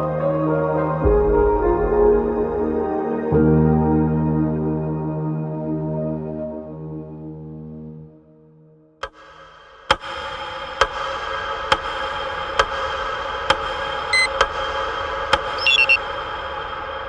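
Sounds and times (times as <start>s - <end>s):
sharp ticks: 13.5s - 14.5s
short high chirps: 15.5s - 16.0s.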